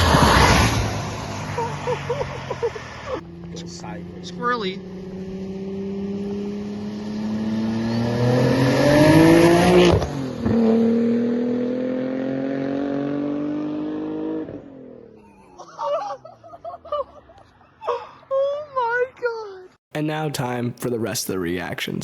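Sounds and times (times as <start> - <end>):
car engine revving under full throttle: 0.0 - 1.6, 2.9 - 15.1.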